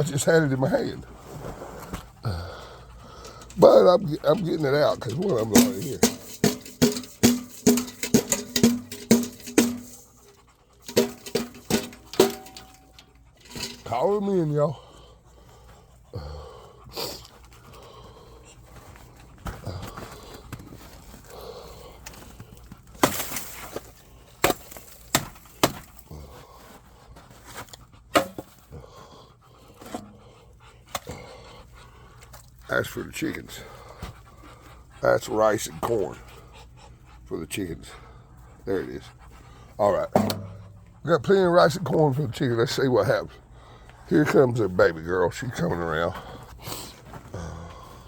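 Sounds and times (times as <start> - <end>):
sharp knocks and clatters: 5.0 - 14.0, 40.1 - 41.0
metal pan being beaten: 5.6 - 13.8, 40.1 - 40.8.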